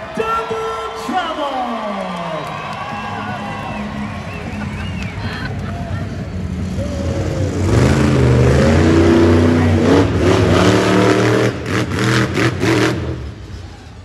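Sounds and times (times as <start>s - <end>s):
truck engine revving: 3.6s - 14.0s.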